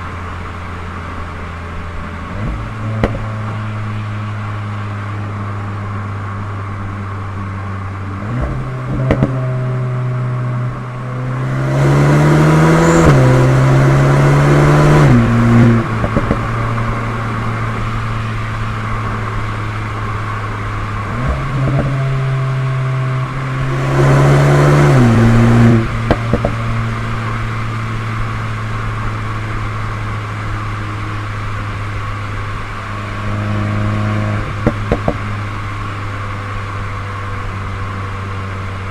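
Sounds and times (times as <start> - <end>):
car engine revving: 0.0 - 38.9
exhaust cracks: 1.0 - 4.0, 6.6 - 23.9, 24.6 - 38.9.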